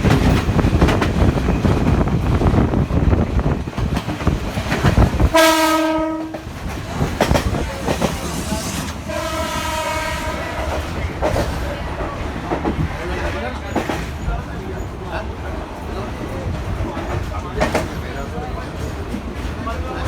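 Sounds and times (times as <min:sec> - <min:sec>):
train wheels clattering on rails: 0:00.0 - 0:20.0
train horn blasts: 0:05.3 - 0:06.5, 0:09.0 - 0:10.8.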